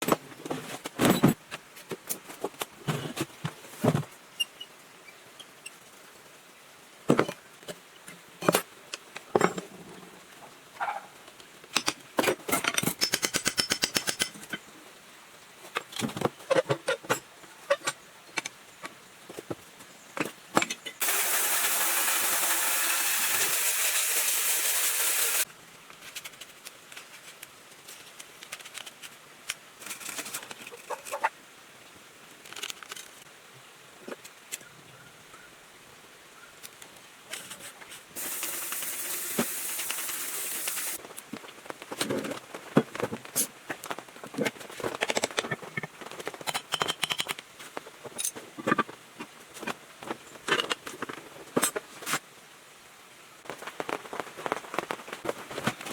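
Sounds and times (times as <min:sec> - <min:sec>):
tools clicking and knocking: 0:11.7 - 0:14.6, 0:44.9 - 0:47.5
steady hiss: 0:17.2 - 0:44.2.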